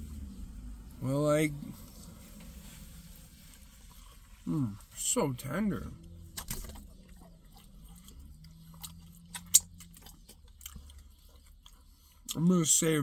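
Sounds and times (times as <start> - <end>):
person chewing: 7.0 - 12.4
wet mouth clicks: 7.2 - 12.4.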